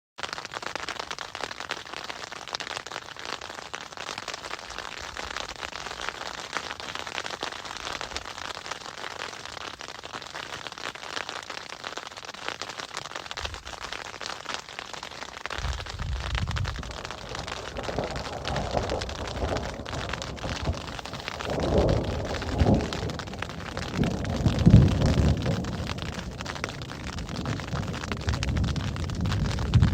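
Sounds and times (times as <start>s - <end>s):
hail pelting down: 0.2s - 29.9s
low rumble: 15.6s - 26.1s.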